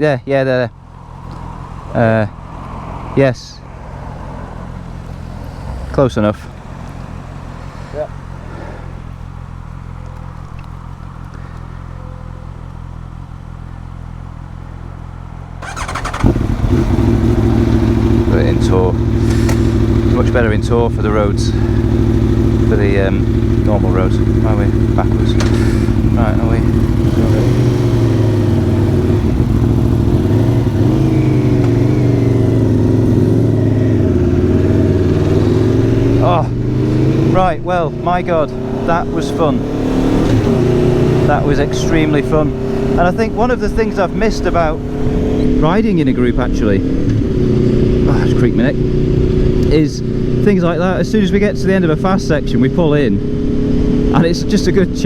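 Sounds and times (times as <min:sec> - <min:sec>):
motorcycle engine idling: 0:06.5 - 0:54.8
motorcycle starter whirr: 0:15.6 - 0:20.4, 0:21.4 - 0:37.3
loud motorcycle idle: 0:15.6 - 0:34.1.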